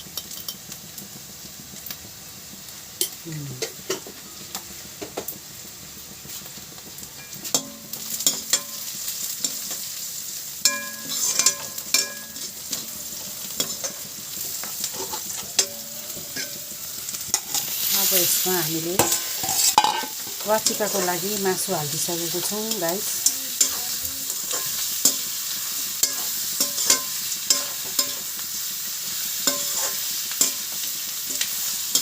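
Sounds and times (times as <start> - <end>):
food sizzling in a pan: 0.0 - 32.0
spoon scraping a pan: 10.6 - 18.4, 19.0 - 28.4, 29.4 - 32.0.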